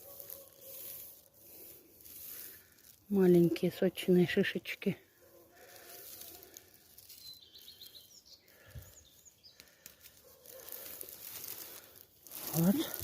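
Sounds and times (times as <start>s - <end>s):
small bird chirping: 5.8s - 10.6s.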